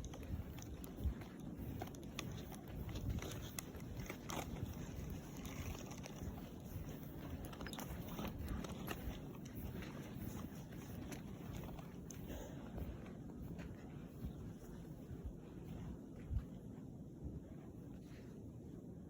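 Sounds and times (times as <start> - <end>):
footsteps crunching in snow: 0.0 - 16.7.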